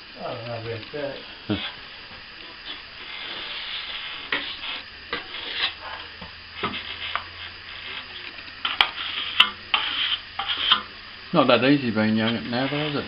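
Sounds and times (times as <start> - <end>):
tools scraping wet plaster: 2.6 - 5.8, 8.6 - 10.9, 12.2 - 13.0.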